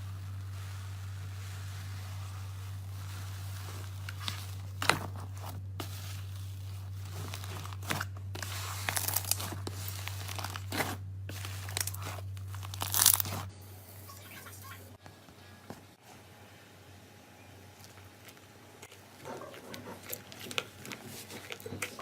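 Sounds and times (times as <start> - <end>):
slime squished by hand: 0.1 - 13.5.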